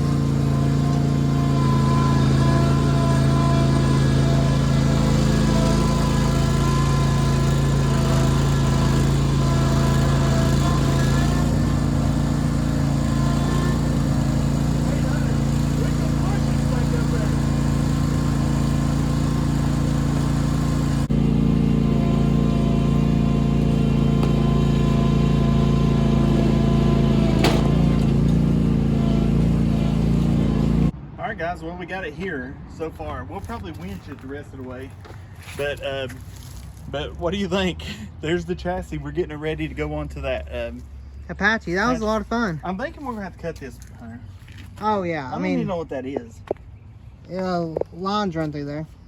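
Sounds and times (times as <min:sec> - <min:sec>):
riding lawn mower engine: 0:00.0 - 0:31.0, 0:32.7 - 0:49.0.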